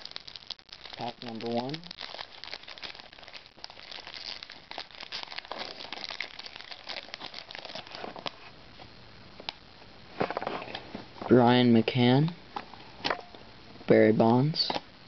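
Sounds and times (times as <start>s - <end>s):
card pack wrapper crinkling: 0.0s - 8.5s.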